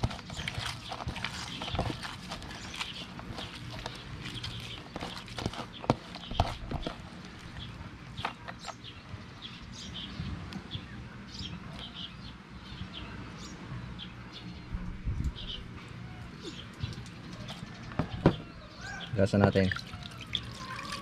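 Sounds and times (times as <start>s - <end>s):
low steady rumble: 0.0s - 18.8s
small birds chirping: 0.0s - 21.0s.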